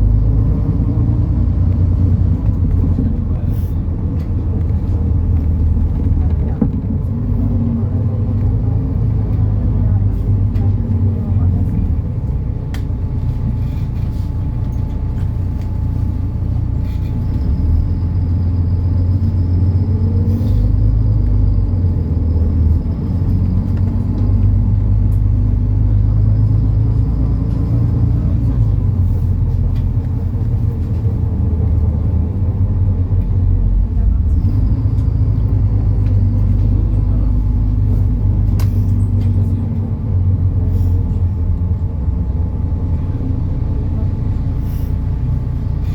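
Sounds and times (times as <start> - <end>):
bus diesel engine rumble: 0.0 - 45.9.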